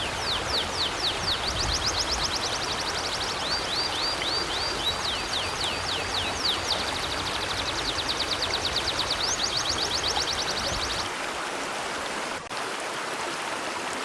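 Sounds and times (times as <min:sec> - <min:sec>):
songbird singing: 0:00.0 - 0:11.1
river flowing: 0:00.0 - 0:14.0.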